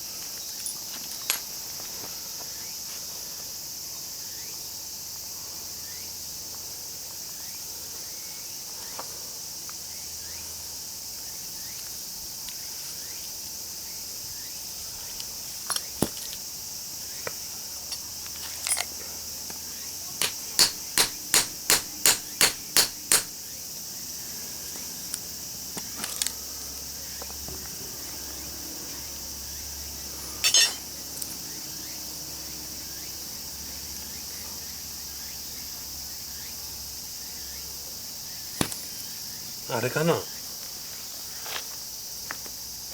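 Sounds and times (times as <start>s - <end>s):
crickets chirping: 0.0s - 42.9s
hammer striking metal: 20.2s - 23.3s, 30.4s - 30.8s.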